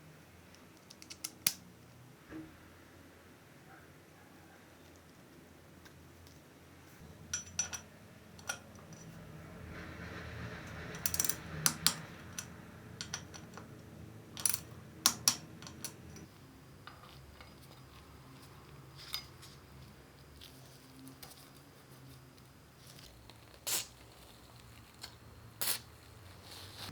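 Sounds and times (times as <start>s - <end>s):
metallic tools clinking: 7.3s - 9.2s, 14.4s - 19.9s.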